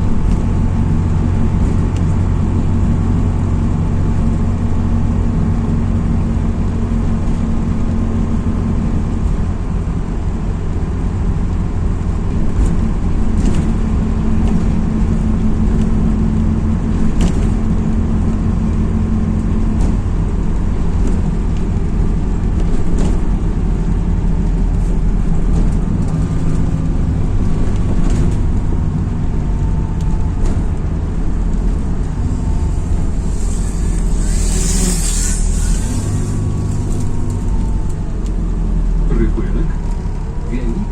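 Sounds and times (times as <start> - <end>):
bus engine and road drone: 0.0 - 40.9
body clicks and rattles: 12.3 - 16.1, 19.4 - 33.2.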